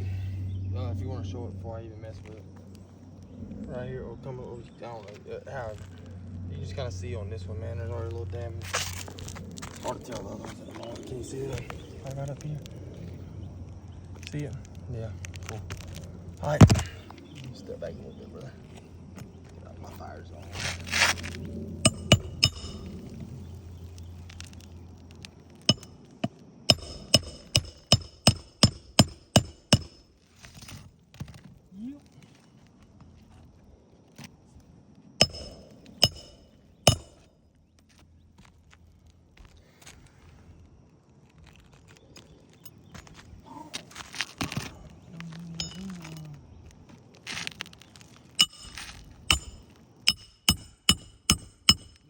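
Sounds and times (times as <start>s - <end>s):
hammer strikes on shingle roof: 21.8s - 23.0s, 25.7s - 30.1s, 35.2s - 37.3s, 48.4s - 52.0s.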